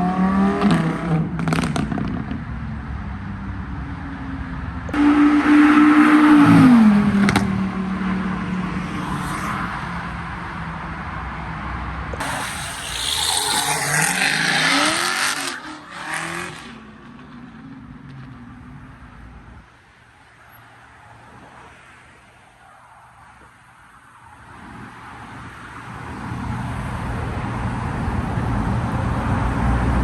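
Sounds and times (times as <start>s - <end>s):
car engines revving: 4.6s - 19.6s.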